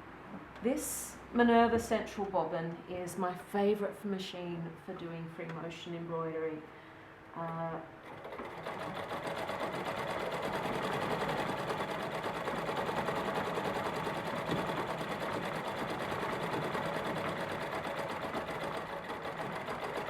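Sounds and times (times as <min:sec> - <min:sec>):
sewing machine stitching: 0:08.0 - 0:20.0.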